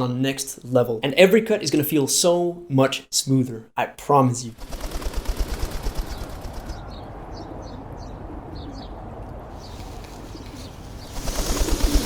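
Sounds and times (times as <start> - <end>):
birds chirping: 5.0 - 12.0.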